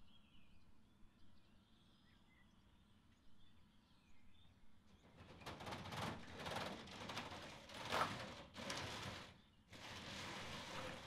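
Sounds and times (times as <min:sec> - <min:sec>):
small songbirds chirping: 0:00.0 - 0:05.2.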